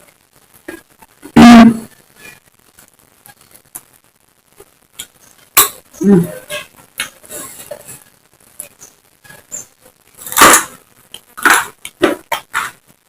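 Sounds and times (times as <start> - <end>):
person chewing crunchy food: 10.2 - 12.9.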